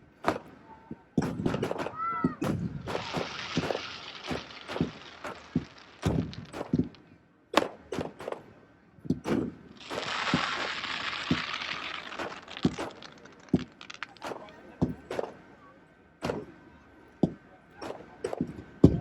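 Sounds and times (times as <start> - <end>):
fireworks bangs and cracks: 1.2 - 8.5, 9.1 - 15.4
fireworks dense hiss: 1.3 - 7.0, 9.3 - 15.4.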